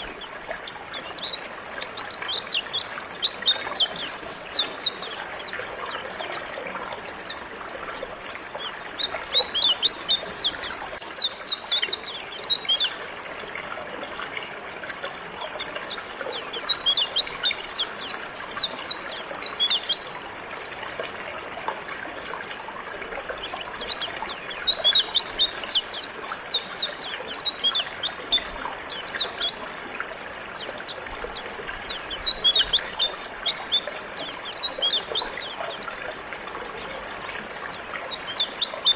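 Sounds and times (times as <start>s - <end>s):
bird twittering high chirps: 0.0s - 6.4s, 7.0s - 13.0s, 16.0s - 20.2s, 23.4s - 29.7s, 30.6s - 35.9s
river trickling: 0.0s - 38.9s.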